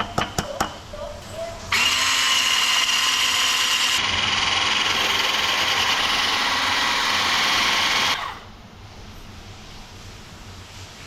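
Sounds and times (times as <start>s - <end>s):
small appliance motor whining: 1.7s - 8.5s.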